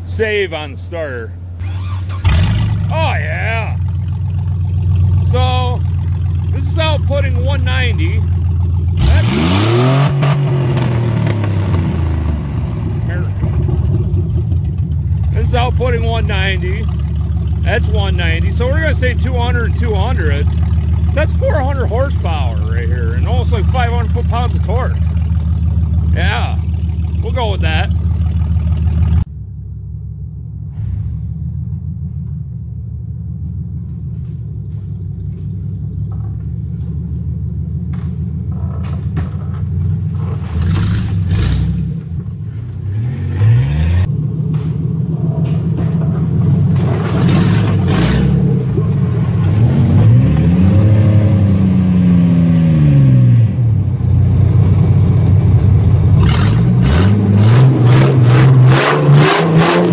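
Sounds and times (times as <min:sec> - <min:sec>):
truck engine revving: 0:00.0 - 0:29.3, 0:37.9 - 0:59.9
knocks and rattles: 0:33.8 - 0:37.2, 0:37.8 - 0:41.3, 0:44.4 - 0:48.0.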